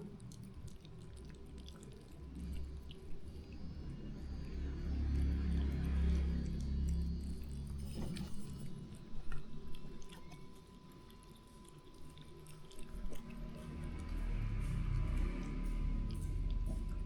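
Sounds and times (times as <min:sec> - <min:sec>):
pet chewing food: 0:09.6 - 0:14.2.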